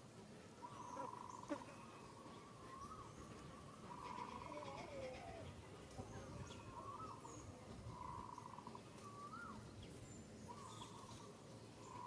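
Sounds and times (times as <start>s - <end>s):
whistled bird notes: 0.6s - 5.4s, 6.4s - 9.6s.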